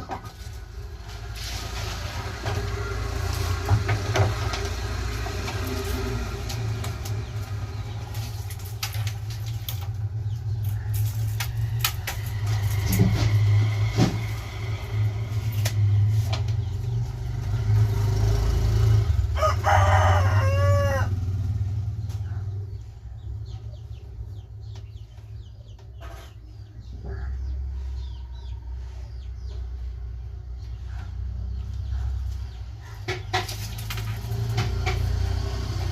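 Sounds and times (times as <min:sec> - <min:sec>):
rooster crowing: 0:19.3 - 0:21.4.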